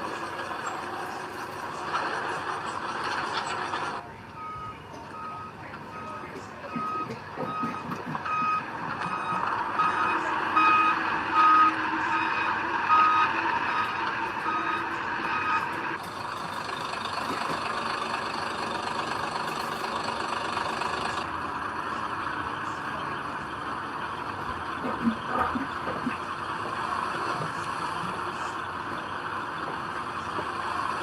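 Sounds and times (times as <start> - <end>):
diesel engine running: 0.0 - 31.0
backup alarm beeping: 4.4 - 15.7.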